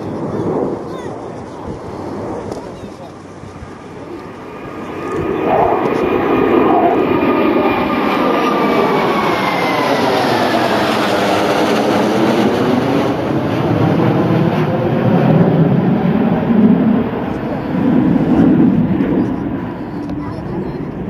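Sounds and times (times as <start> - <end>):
jet engine whine falling: 0.0 - 21.0
jet fighters roaring past: 0.0 - 21.0.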